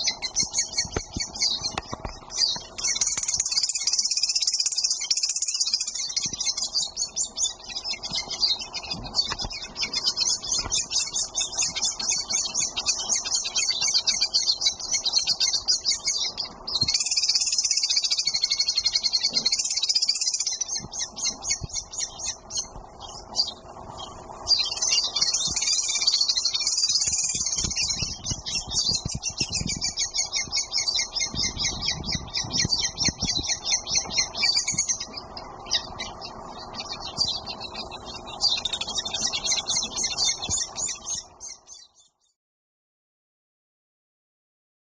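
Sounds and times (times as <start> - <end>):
swifts chittering: 0.0 - 42.3
dull low thumps: 27.4 - 35.1.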